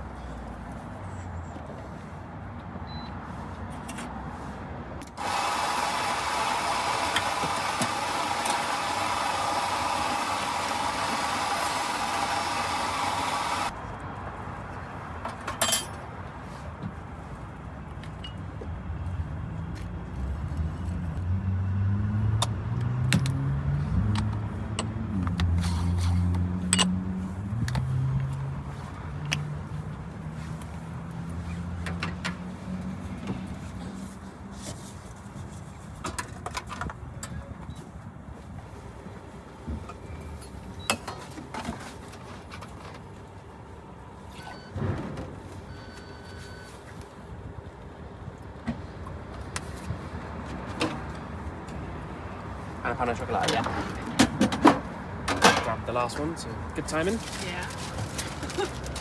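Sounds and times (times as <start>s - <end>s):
cups and equipment clicking: 5.2s - 13.7s
steam wand hissing: 5.2s - 13.7s.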